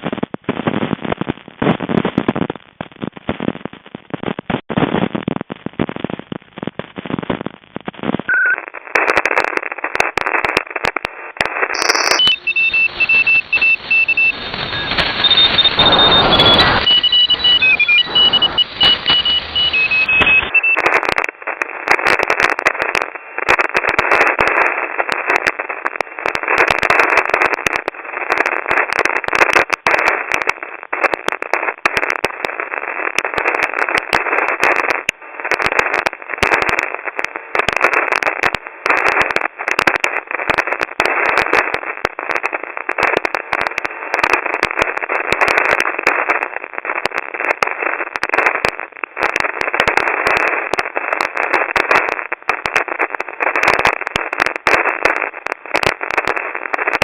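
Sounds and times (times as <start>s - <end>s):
radio static hiss with crackles: 0.0s - 57.0s
whistling and dashed radio tones: 8.2s - 57.0s.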